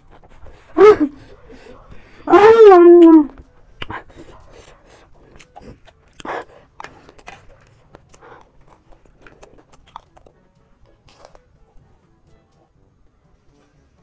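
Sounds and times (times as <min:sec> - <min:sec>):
chewing crunchy snack: 0:03.8 - 0:11.9.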